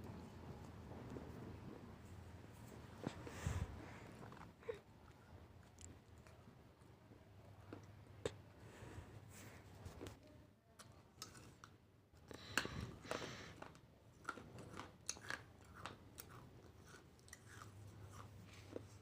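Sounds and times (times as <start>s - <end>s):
chewing and crunching food: 2.8s - 8.5s, 9.8s - 19.0s.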